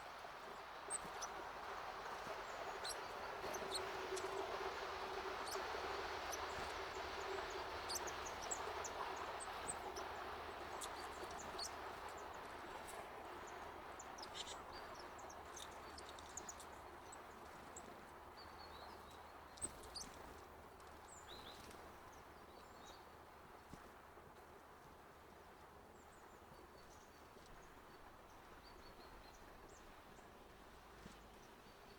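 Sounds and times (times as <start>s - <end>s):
broad outdoor hiss: 0.0s - 31.7s.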